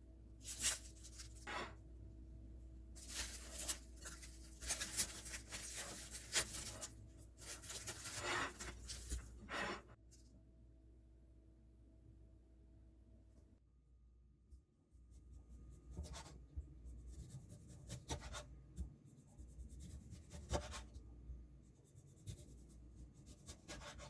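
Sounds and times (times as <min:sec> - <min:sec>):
paper wrapping rustling: 0:00.4 - 0:01.5, 0:03.0 - 0:09.4.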